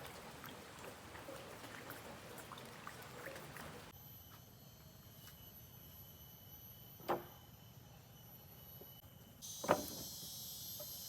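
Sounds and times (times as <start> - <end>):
light rain: 0.0 - 3.9
raindrops ticking: 0.0 - 3.9.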